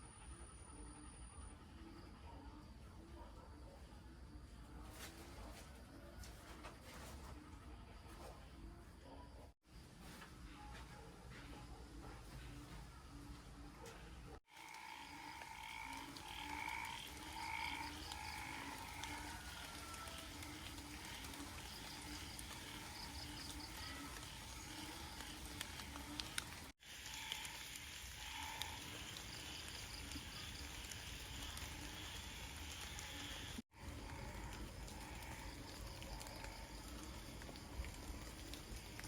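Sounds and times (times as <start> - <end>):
frogs croaking: 14.5 - 39.0.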